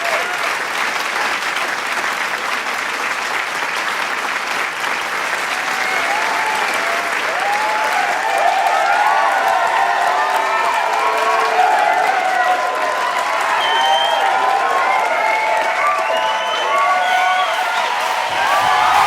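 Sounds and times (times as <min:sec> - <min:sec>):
cheering voices and shouts: 0:00.0 - 0:00.6, 0:05.4 - 0:19.0
large crowd clapping: 0:00.0 - 0:19.0.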